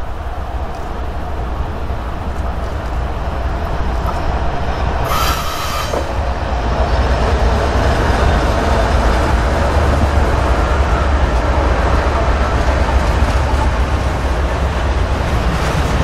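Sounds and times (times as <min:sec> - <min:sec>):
diesel locomotives rumbling: 0:00.0 - 0:16.0
brief high-pitched squeal: 0:05.0 - 0:06.2.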